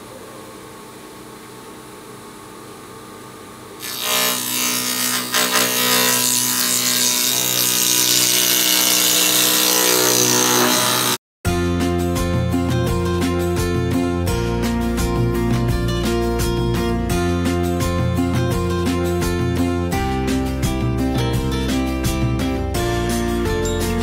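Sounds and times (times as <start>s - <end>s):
cutter cutting wooden board: 3.8s - 11.2s.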